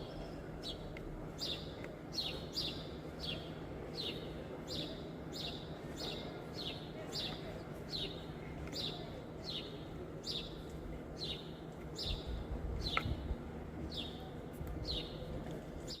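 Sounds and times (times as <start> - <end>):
low steady rumble: 7.5 - 16.0.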